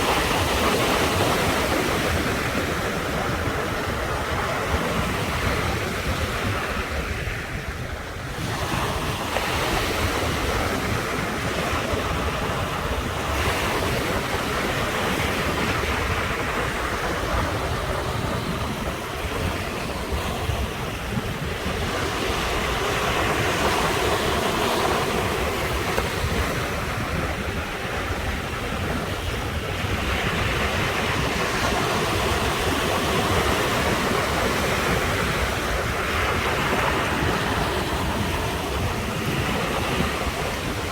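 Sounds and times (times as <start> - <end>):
ocean surf washing in: 0.0 - 40.9
wind rumbling on microphone: 0.0 - 40.9.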